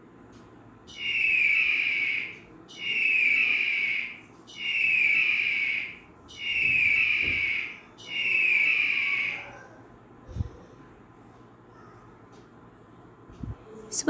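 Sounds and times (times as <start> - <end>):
eagle screeching: 0.9 - 9.8.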